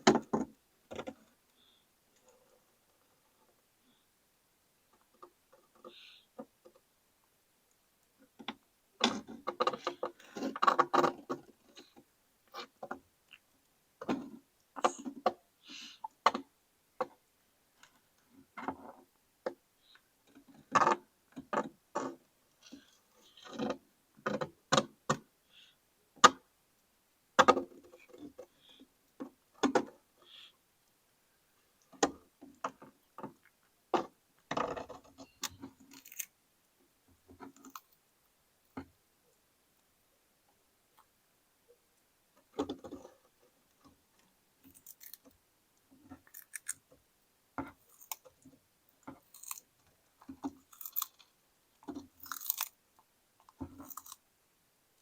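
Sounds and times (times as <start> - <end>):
turtle crunching food: 34.5 - 36.4, 37.4 - 38.0, 44.6 - 45.4, 46.1 - 47.0, 47.6 - 54.3.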